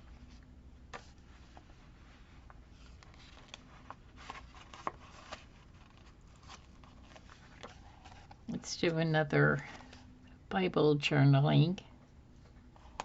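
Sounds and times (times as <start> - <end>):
paper rustling: 0.1 - 8.5.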